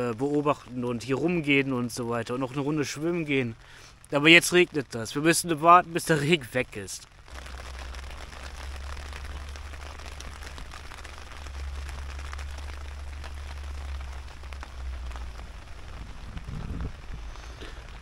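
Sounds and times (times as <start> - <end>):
rain hissing on a tarp: 0.0 - 18.0
low rumble: 7.1 - 18.0.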